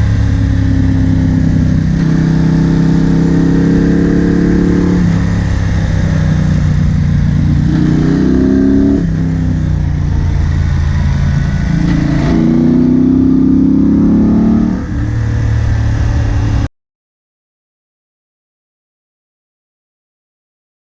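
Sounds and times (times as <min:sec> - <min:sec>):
motorcycle engine accelerating: 0:00.0 - 0:16.7.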